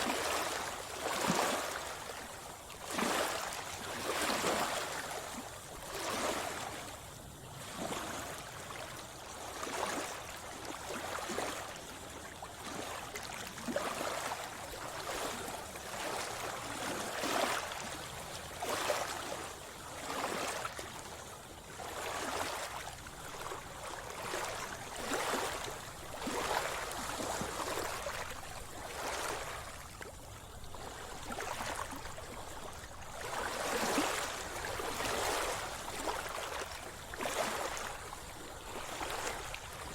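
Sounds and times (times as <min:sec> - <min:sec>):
water splashing around swimmer: 0:21.8 - 0:39.9.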